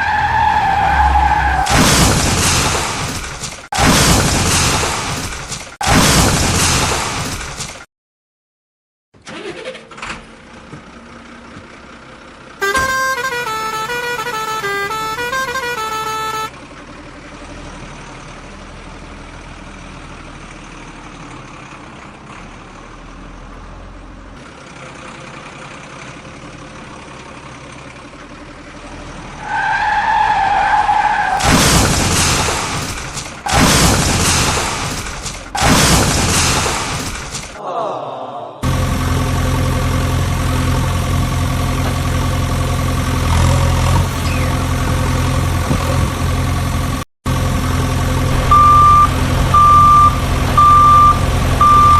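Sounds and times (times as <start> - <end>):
held horn note: 12.6 - 16.5
musical vehicle horn tune: 12.6 - 16.6.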